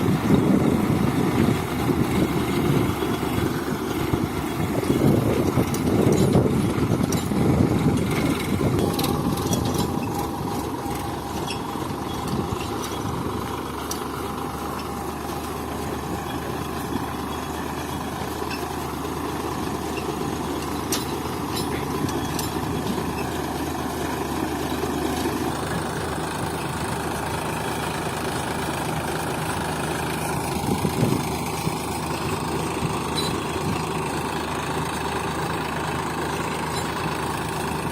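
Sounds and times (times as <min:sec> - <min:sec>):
tractor engine running: 0:00.0 - 0:37.9.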